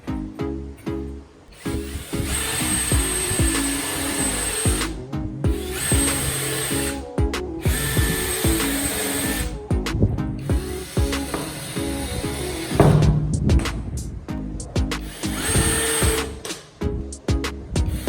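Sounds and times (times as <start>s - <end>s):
power tool motor whining: 1.5s - 9.6s, 10.4s - 13.1s, 15.0s - 16.7s
background music with beat: 1.8s - 18.0s.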